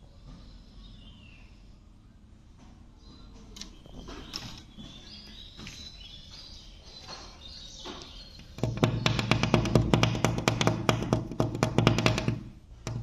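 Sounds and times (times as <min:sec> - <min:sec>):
birds chirping: 0:00.0 - 0:10.3.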